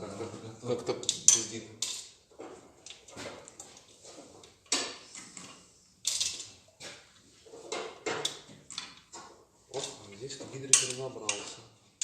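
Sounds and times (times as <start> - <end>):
metal parts clinking: 1.0 - 2.2, 5.3 - 6.6.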